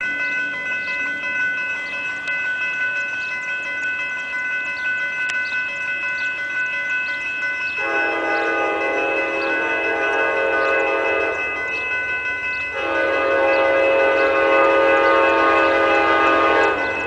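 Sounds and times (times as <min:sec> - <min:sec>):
crossing bell ringing: 0:00.0 - 0:17.0
train horn blowing: 0:07.8 - 0:11.6, 0:12.7 - 0:17.0.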